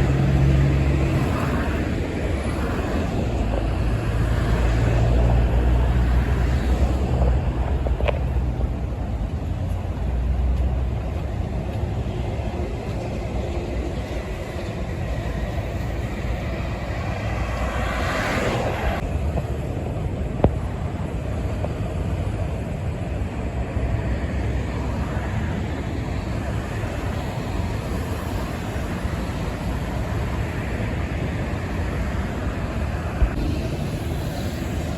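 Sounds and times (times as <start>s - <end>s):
truck engines rumbling: 0.0s - 34.9s
tyres on road: 0.0s - 34.9s.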